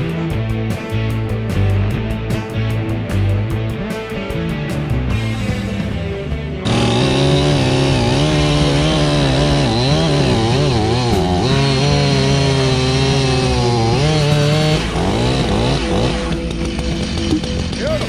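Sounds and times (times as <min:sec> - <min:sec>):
chainsaw cutting at high revs: 0:06.6 - 0:17.9.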